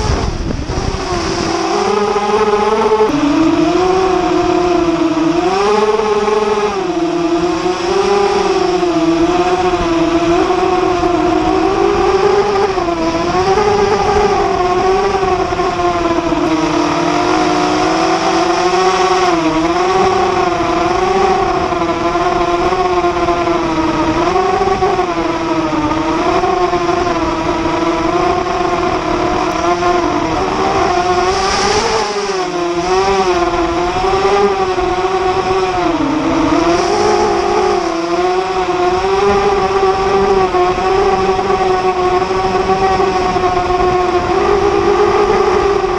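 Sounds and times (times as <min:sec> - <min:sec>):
drone motors whining: 0:00.0 - 0:45.9.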